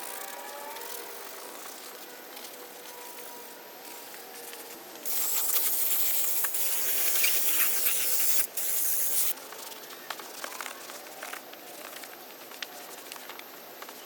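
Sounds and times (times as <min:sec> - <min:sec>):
spray jet hissing: 0:05.1 - 0:09.3.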